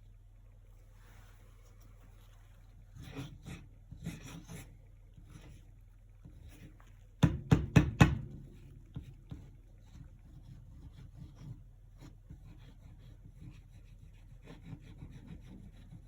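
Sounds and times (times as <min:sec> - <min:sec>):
paintbrush scrubbing on canvas: 0:08.6 - 0:16.0.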